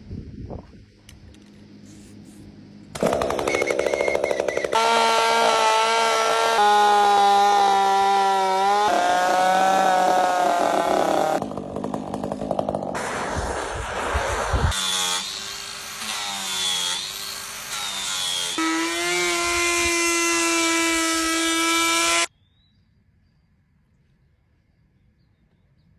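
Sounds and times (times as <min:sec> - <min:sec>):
chainsaw cutting wood: 0:03.0 - 0:22.3.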